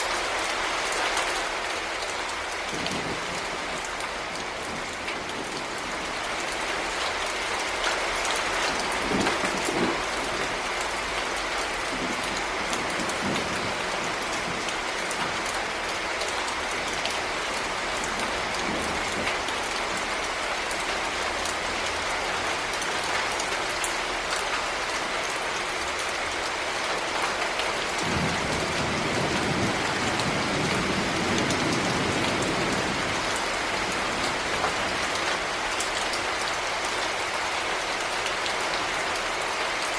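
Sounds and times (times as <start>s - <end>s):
thunder rumbling: 2.7s - 6.9s, 8.8s - 15.8s, 28.0s - 35.1s.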